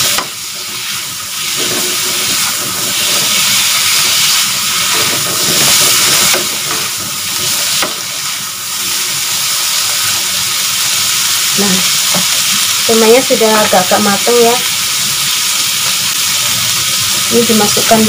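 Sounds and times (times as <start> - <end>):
spatula stirring in a wok: 0.0 - 10.3
food sizzling in hot oil: 0.0 - 18.0.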